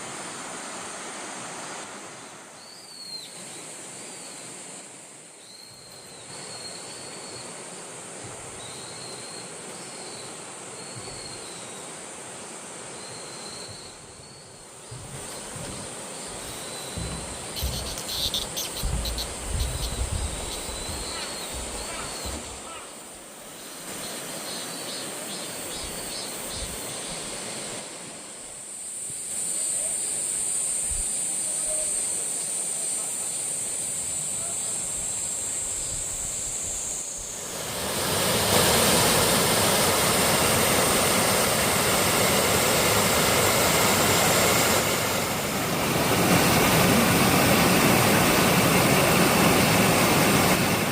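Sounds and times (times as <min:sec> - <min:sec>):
rushing stream and waterfall: 0:00.0 - 0:50.9
high-pitched insect buzz: 0:15.3 - 0:23.0, 0:28.8 - 0:37.4.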